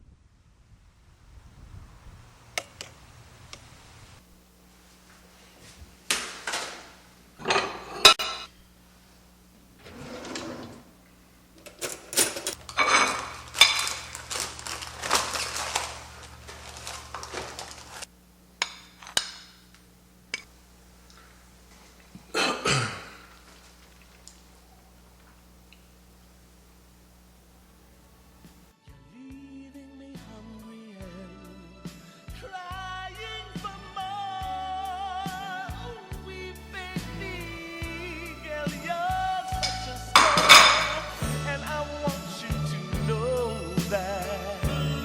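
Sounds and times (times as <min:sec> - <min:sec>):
faint steady hum: 0:00.0 - 0:28.8, 0:32.3 - 0:45.0
dishes and cutlery clinking: 0:07.4 - 0:08.5, 0:11.7 - 0:14.1, 0:39.5 - 0:41.2.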